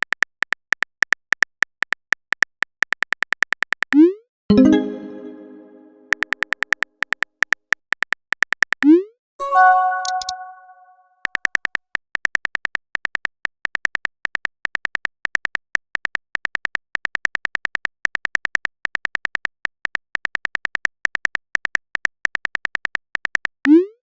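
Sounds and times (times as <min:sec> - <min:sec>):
phone typing clicks: 0:09.9 - 0:10.5.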